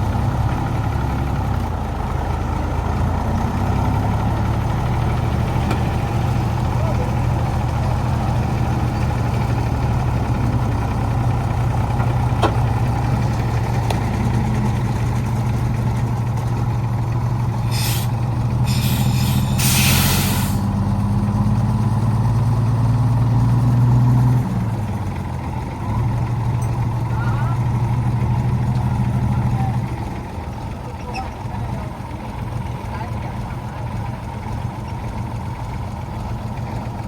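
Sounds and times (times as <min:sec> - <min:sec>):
old truck engine running: 0:00.0 - 0:37.0
short bursts of hiss: 0:17.7 - 0:20.7.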